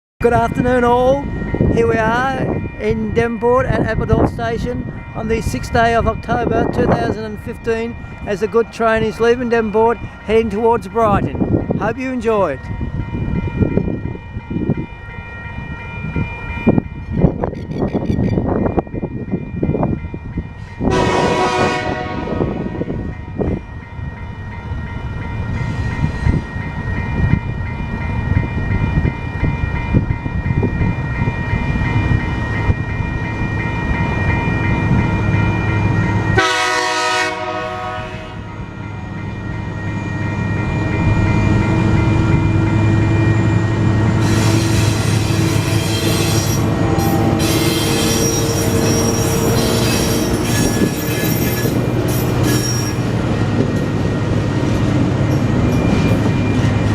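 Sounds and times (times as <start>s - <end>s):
crossing warning bells ringing: 0.2s - 56.9s
locomotive horn blasts: 20.9s - 22.9s, 36.4s - 38.6s.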